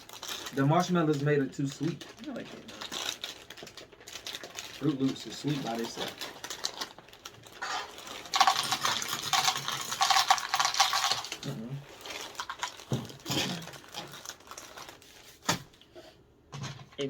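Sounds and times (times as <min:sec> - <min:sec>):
dry cereal pouring into bowl: 0:04.3 - 0:12.9.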